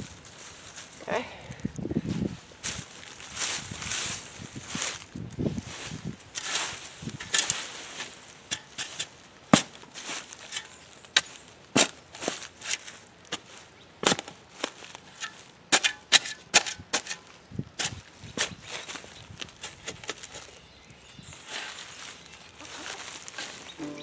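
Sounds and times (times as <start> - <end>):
digging tool striking soil: 7.2 - 7.7, 8.5 - 12.0, 15.1 - 17.2.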